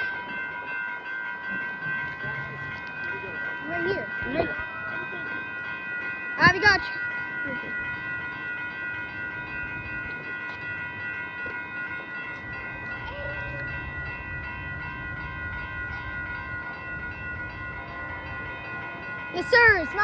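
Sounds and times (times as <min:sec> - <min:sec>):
high ringing tones: 0:00.0 - 0:20.0.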